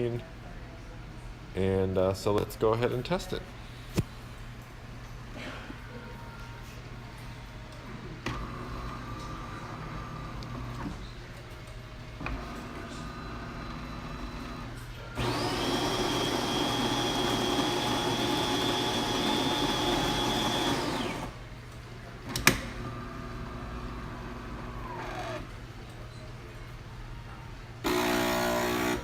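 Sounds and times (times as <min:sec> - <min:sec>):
machine motor hum: 0:12.2 - 0:21.4, 0:27.8 - 0:29.0
espresso machine grinding beans: 0:12.4 - 0:21.4, 0:27.9 - 0:29.0.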